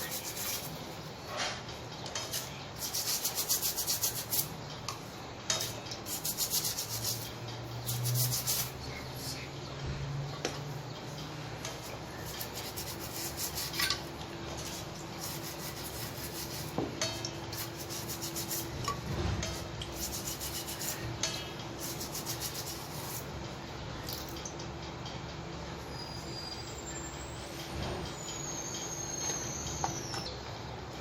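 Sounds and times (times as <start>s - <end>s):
hand scrubbing strokes: 0.0s - 0.8s, 2.2s - 4.5s, 5.6s - 9.3s, 11.8s - 13.9s, 14.6s - 16.8s, 17.5s - 18.7s, 19.9s - 21.0s, 21.8s - 23.2s.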